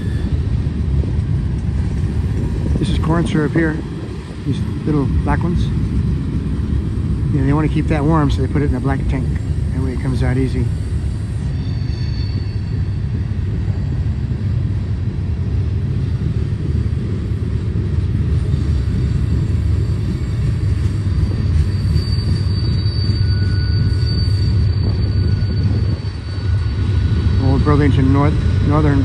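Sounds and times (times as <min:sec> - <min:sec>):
faint high-pitched wheel squeal: 0:00.0 - 0:00.6, 0:07.5 - 0:14.2, 0:19.4 - 0:29.0
train wheels rumbling on rail: 0:00.0 - 0:29.0.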